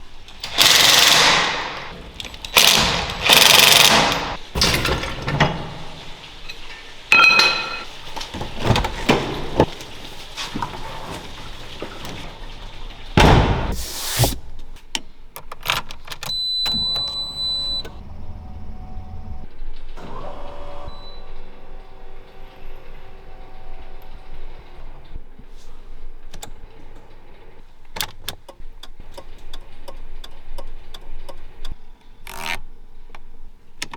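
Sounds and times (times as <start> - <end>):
clunks and knocks: 7.4 - 13.8.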